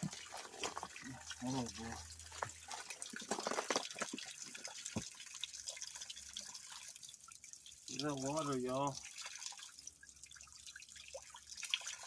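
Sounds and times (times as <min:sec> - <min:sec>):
water dripping and trickling: 0:00.0 - 0:12.0.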